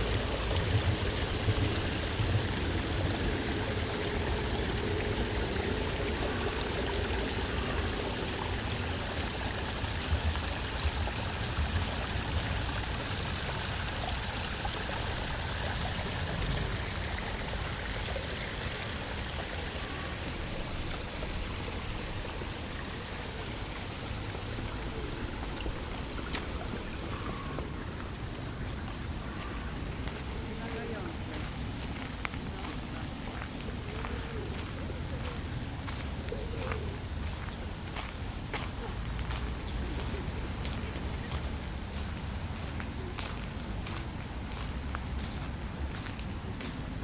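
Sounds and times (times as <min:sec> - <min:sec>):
running splashing water: 0:00.0 - 0:44.7.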